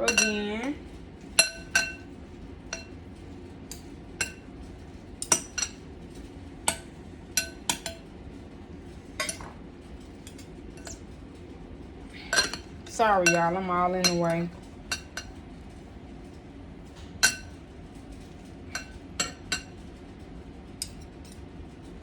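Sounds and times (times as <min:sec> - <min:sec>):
utensils clinking against a bowl: 0:00.0 - 0:08.1, 0:09.1 - 0:11.2, 0:12.2 - 0:15.8, 0:16.9 - 0:19.9, 0:20.8 - 0:21.5.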